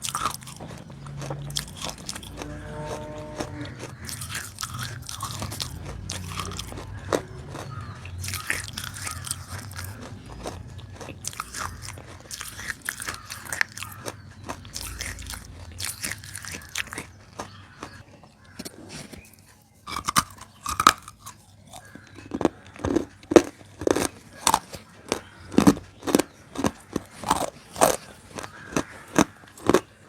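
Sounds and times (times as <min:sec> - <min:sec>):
crunchy chewing: 0:00.0 - 0:30.0.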